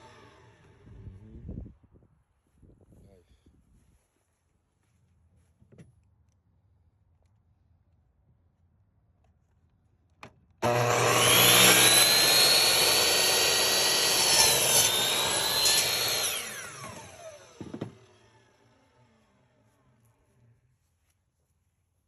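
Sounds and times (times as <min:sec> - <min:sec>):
saw cutting wooden board: 0:00.0 - 0:00.9, 0:10.6 - 0:19.2
miter saw motor whining: 0:00.0 - 0:01.2, 0:10.6 - 0:19.4.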